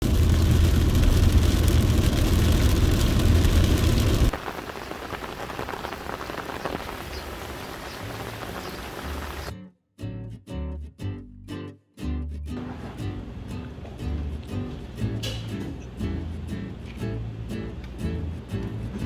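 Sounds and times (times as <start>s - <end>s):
deep steady rumble: 0.0s - 4.5s
heavy rain falling: 0.0s - 9.5s
light rain with drops: 0.0s - 9.5s.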